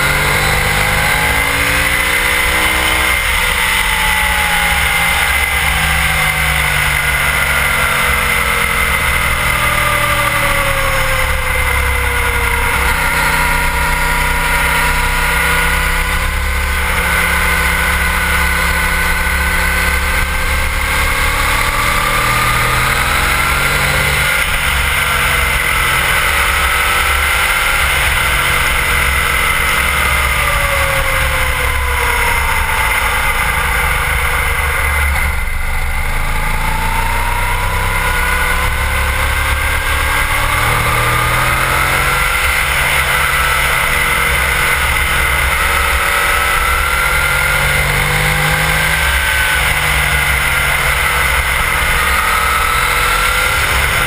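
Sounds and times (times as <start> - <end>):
motorcycle engine at speed: 0.0 - 54.0.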